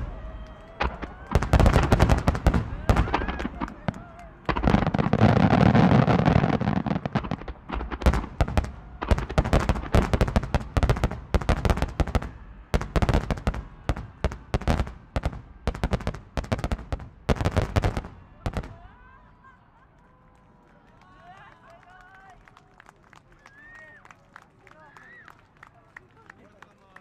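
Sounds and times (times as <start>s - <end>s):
firework shells bursting: 0.7s - 18.1s.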